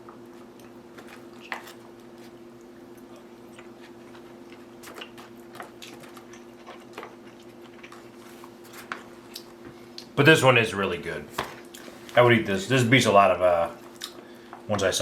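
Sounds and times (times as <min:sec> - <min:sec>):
quiet chewing: 0:00.0 - 0:10.2, 0:13.8 - 0:14.7
steady low hum: 0:00.0 - 0:15.0.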